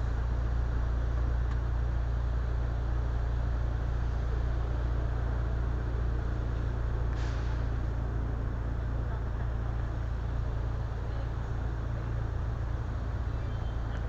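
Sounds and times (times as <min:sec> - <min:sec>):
road noise: 0:00.0 - 0:14.0
short hiss: 0:07.1 - 0:07.7.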